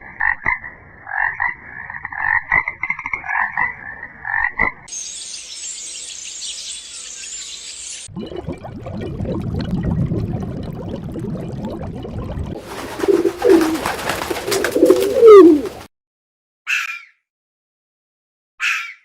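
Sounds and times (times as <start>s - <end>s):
bird cooing: 12.9s - 15.8s.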